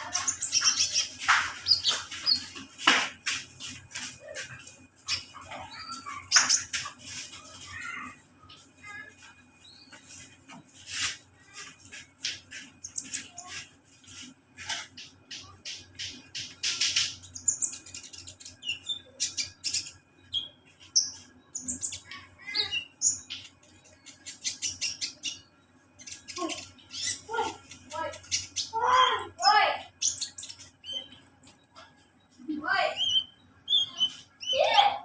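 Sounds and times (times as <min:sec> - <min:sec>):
sunbird singing: 0:14.8 - 0:35.0.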